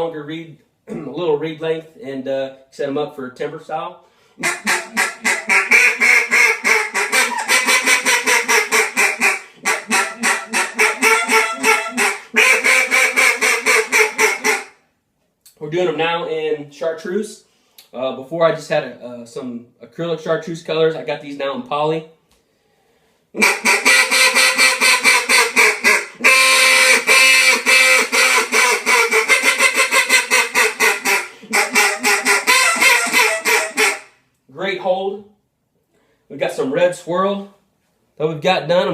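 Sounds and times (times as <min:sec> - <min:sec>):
duck call quacking: 0:04.4 - 0:14.8, 0:23.4 - 0:34.2.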